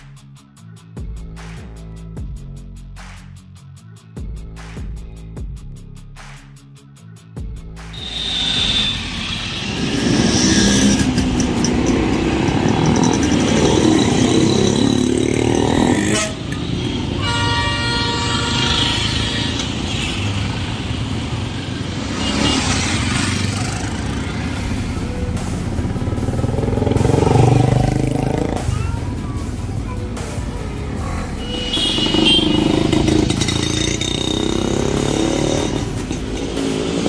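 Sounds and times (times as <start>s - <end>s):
horn sounding: 7.9s - 11.7s, 12.9s - 20.6s, 31.2s - 36.0s
motorcycle engines running: 9.2s - 17.2s, 19.6s - 37.0s.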